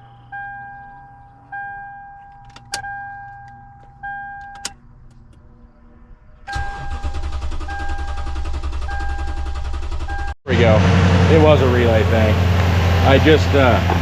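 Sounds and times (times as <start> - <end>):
car warning chime dinging: 0.0 - 4.8, 6.5 - 10.4
engine cranking and running: 6.5 - 14.0.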